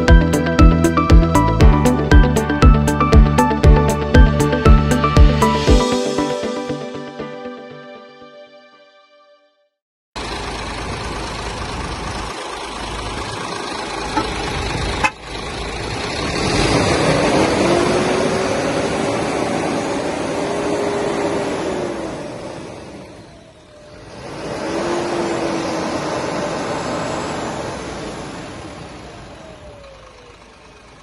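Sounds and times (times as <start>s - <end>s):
truck engine running: 10.2s - 31.0s.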